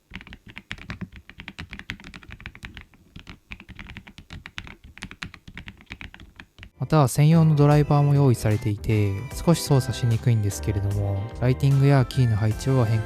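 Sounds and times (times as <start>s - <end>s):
fast typing on mechanical keyboard: 0.1s - 6.7s.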